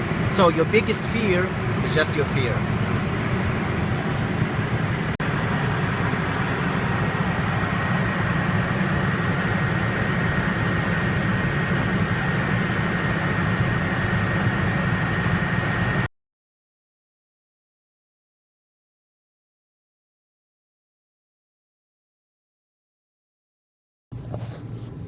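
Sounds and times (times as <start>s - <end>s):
aircraft cockpit engine rumble: 0.0s - 16.1s
thin steady whine: 0.0s - 16.1s.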